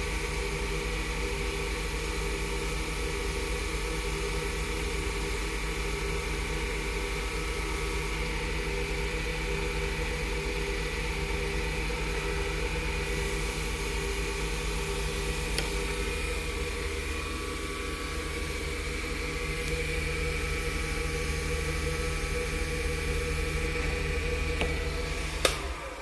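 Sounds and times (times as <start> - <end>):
wood lathe motor hum: 7.2 - 26.0.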